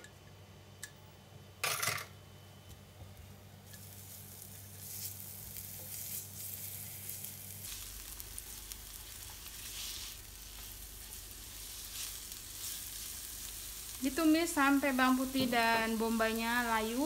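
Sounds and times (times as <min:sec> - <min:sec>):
garlic and onion sizzling in oil: 0:03.6 - 0:17.0
spatula stirring in wok: 0:03.7 - 0:14.0.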